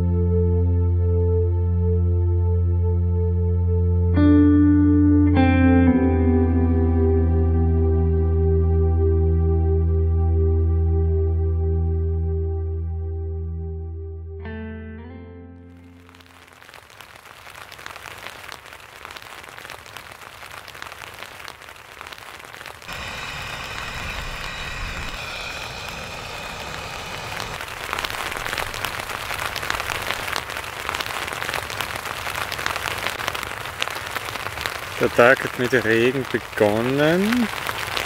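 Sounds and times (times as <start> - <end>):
rain on tent fabric: 15.8 - 38.0
gas stove burner hissing: 22.9 - 27.6.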